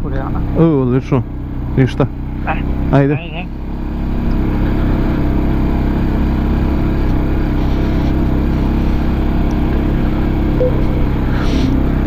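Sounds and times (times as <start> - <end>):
motorcycle engine running steadily: 0.0 - 12.0.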